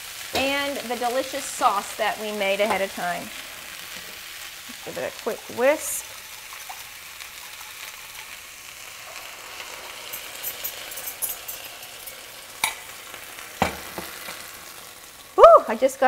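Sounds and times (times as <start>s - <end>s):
sauce poured into hot pan: 0.0s - 15.4s
food sizzling in skillet: 0.0s - 16.0s
whisk clinking glass bowl: 6.3s - 8.3s, 10.1s - 12.8s.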